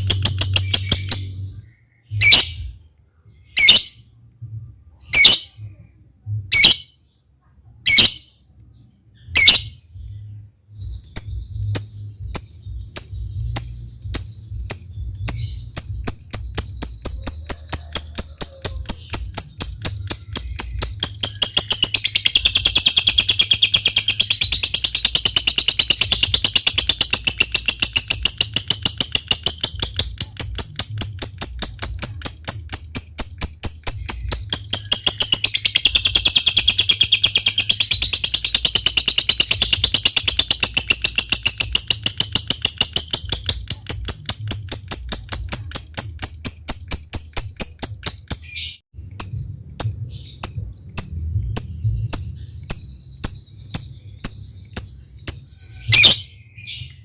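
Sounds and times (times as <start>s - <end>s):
high chattering bird trill: 0.0s - 2.8s, 10.8s - 56.8s
bird ticking clicks: 12.4s - 48.5s.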